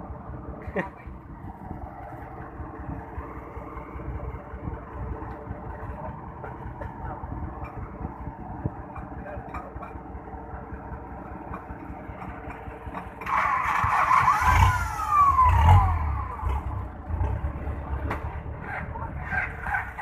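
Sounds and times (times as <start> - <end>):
diesel engine running: 0.0 - 20.0
engine revving with falling whine: 13.2 - 19.2.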